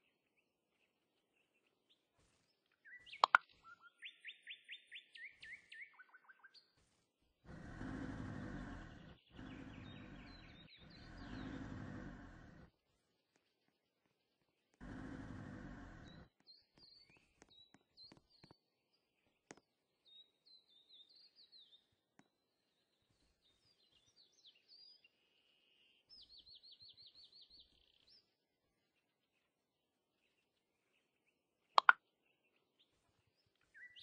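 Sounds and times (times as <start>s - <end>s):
faint bird chirps: 0.0s - 12.7s, 14.8s - 29.6s, 30.2s - 34.0s
bird trill: 2.9s - 6.6s
sharp clicks: 3.2s - 3.5s.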